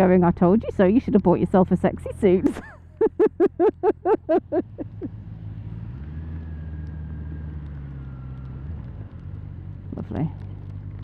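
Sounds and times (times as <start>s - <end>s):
person laughing: 2.5s - 5.1s
motorcycle engine running: 4.0s - 11.0s.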